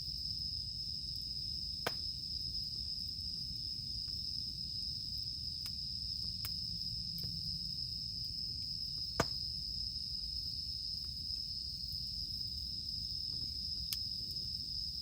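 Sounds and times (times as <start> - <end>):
cicadas droning: 0.0 - 15.0
campfire crackling pops: 1.8 - 2.2, 5.6 - 7.4, 8.8 - 9.6, 13.2 - 14.6.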